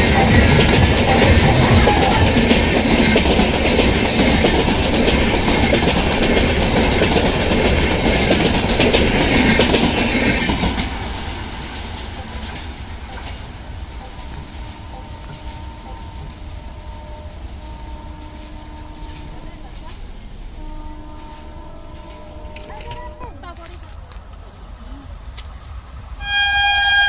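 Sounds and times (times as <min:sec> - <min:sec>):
train wheels clicking at speed: 0:00.0 - 0:16.8
train rumble: 0:00.0 - 0:27.0.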